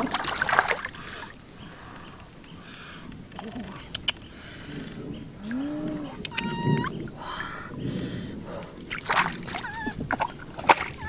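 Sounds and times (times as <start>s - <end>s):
water sloshing and splashing: 0.0s - 1.5s, 8.7s - 11.0s
short pitched bird calls: 5.1s - 7.8s.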